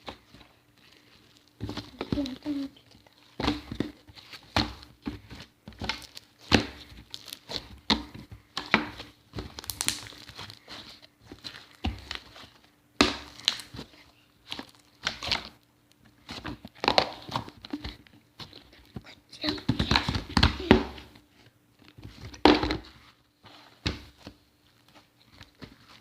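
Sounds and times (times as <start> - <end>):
slime squeezed and stretched by hand: 8.9 - 12.4.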